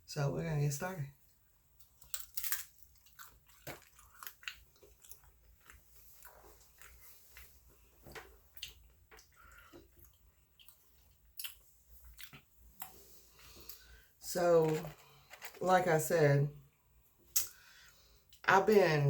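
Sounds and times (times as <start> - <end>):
person chewing food: 1.3 - 14.1.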